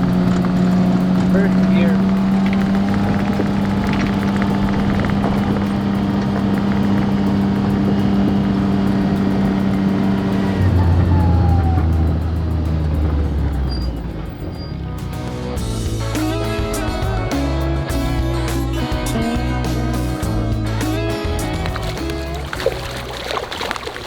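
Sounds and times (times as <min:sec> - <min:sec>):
vehicle engine droning: 0:00.0 - 0:24.0.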